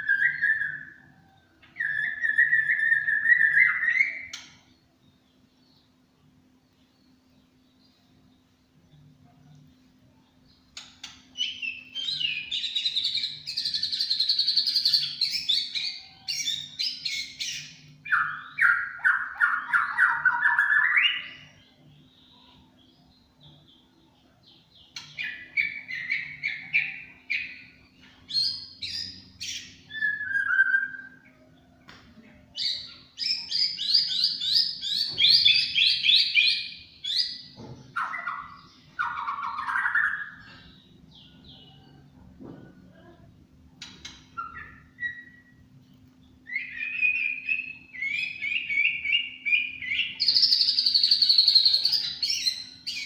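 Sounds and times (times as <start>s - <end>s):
songbird singing: 0.0s - 53.0s.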